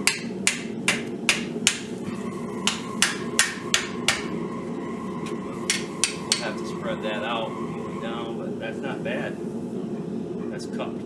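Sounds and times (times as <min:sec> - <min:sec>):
hammer striking hot steel on anvil: 0:00.0 - 0:02.0, 0:02.6 - 0:04.4, 0:05.2 - 0:06.8.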